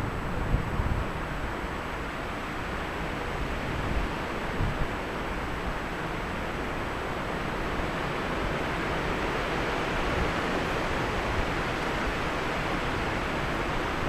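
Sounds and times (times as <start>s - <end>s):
wind buffeting microphone: 0.0s - 1.6s.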